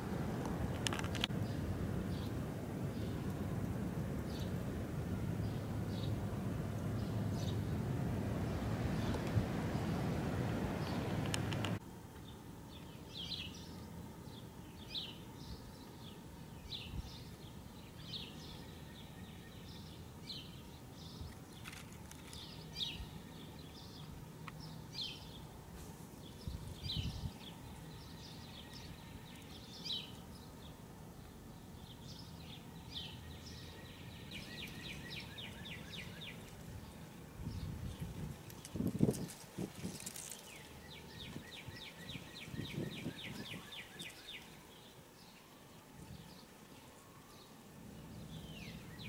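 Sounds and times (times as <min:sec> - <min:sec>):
bird chirping: 0:06.9 - 0:07.8, 0:08.4 - 0:25.5, 0:26.2 - 0:49.0.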